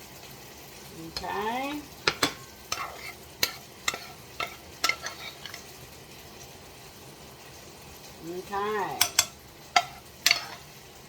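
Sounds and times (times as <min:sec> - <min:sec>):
faint steady hiss: 0:00.0 - 0:11.0
metal spoon scraping a pan: 0:01.1 - 0:05.9, 0:08.9 - 0:10.8.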